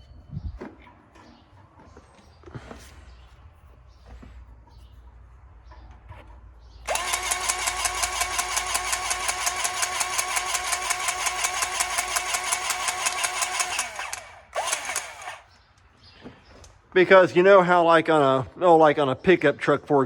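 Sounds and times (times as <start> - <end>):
electric grease gun pumping: 6.9 - 15.5.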